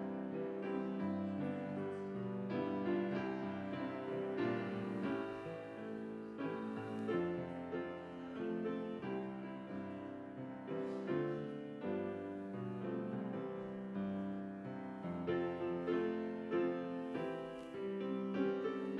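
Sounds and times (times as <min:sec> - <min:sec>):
slow solo piano piece: 0:00.0 - 0:18.9.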